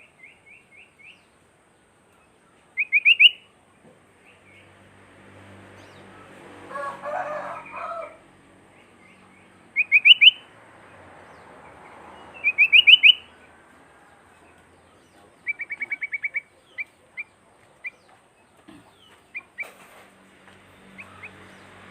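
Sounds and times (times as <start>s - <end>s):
bird chirping and trilling: 2.8s - 3.5s, 8.8s - 10.5s, 11.3s - 13.5s, 15.4s - 18.0s.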